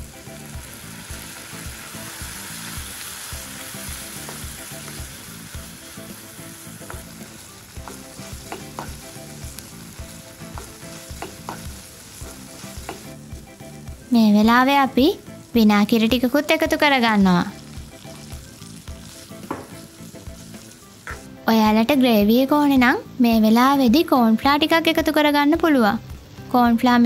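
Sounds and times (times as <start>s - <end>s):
vegetables sizzling in a wok: 0.0s - 27.0s
spatula scraping and tapping pan: 4.0s - 5.1s, 6.8s - 9.7s, 10.5s - 13.2s, 19.4s - 21.3s.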